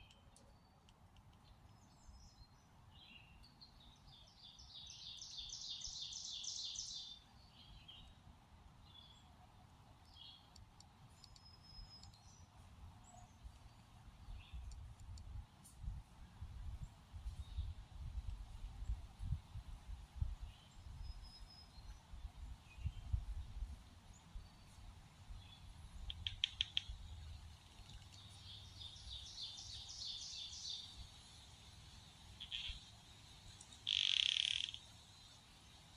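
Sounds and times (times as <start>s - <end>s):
soft ticks: 0.0s - 1.9s, 10.0s - 12.4s, 14.4s - 15.9s, 26.1s - 27.0s, 33.5s - 33.8s
small bird chirping: 0.0s - 8.2s, 10.1s - 15.3s, 25.4s - 31.1s, 32.3s - 35.4s
faint bird chirps: 10.1s - 15.2s, 20.4s - 23.3s, 32.3s - 33.0s, 33.6s - 35.5s.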